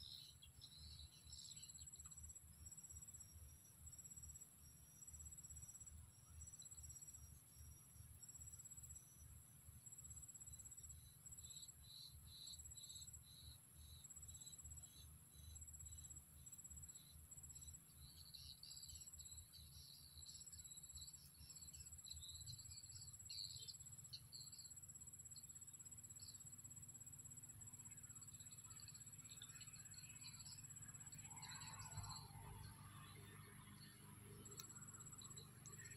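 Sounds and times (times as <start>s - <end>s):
cricket trilling: 0.0s - 9.3s, 9.9s - 35.9s
soft insect chirps: 0.0s - 35.9s
high-pitched insect buzz: 10.4s - 33.8s.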